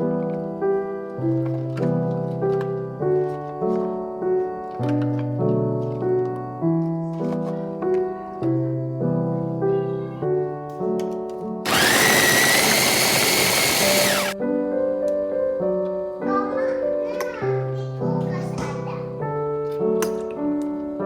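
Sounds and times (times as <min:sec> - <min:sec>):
background piano music: 0:00.0 - 0:11.6, 0:14.3 - 0:21.0
electric food chopper whining: 0:11.7 - 0:14.4.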